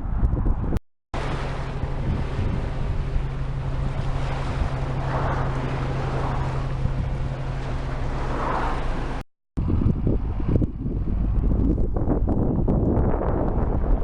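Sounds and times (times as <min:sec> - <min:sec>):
low rumble from bicycle ride: 0:00.0 - 0:14.0
wind rushing over microphone: 0:00.0 - 0:14.0.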